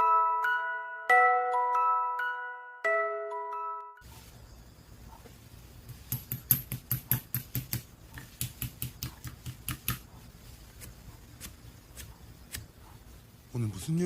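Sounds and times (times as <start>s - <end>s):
faint room hiss: 4.0s - 14.0s.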